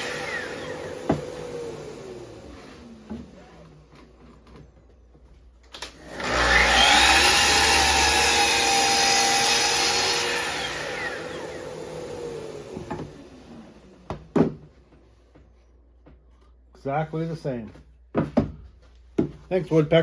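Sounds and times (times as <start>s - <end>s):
chop saw cutting wood: 0.0s - 1.9s, 6.0s - 13.2s.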